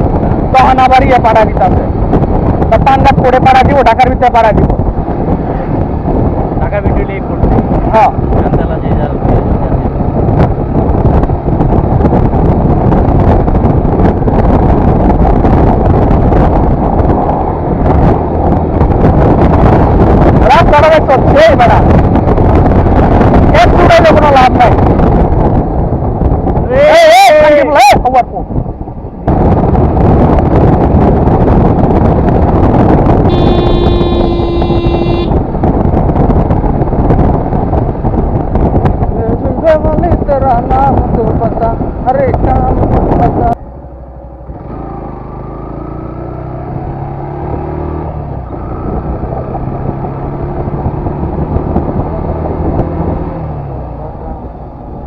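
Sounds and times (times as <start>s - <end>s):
wind buffeting microphone: 0.0s - 55.0s
vehicle horn: 33.3s - 35.4s.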